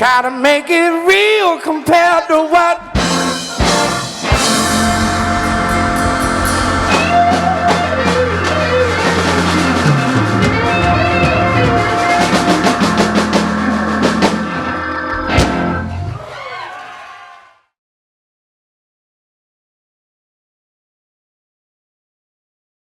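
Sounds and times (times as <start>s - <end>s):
drums and cymbals: 2.8s - 16.3s
live rock band: 2.8s - 16.3s.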